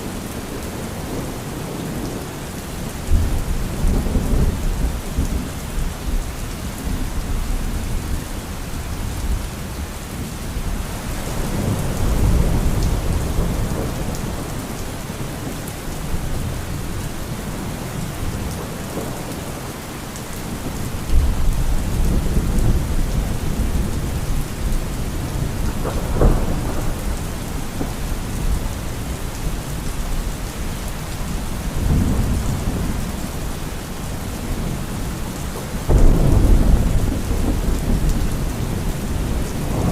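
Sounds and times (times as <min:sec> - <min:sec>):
steady rain falling: 0:00.0 - 0:39.9
thunder rolling: 0:25.3 - 0:28.6, 0:35.8 - 0:39.9.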